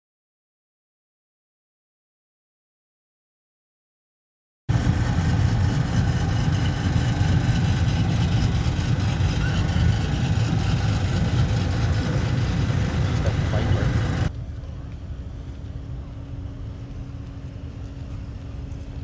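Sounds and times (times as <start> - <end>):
car engine idling: 4.7 - 14.3.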